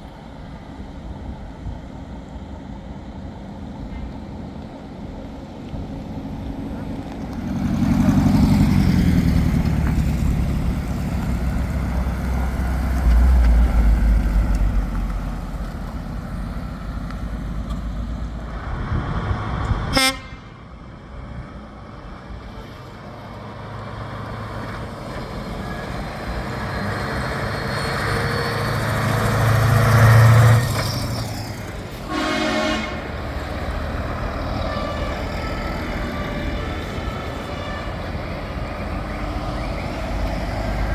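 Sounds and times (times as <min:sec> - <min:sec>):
heavy trucks driving past: 0:00.0 - 0:40.9
short horn toot: 0:19.9 - 0:20.5, 0:32.1 - 0:33.2.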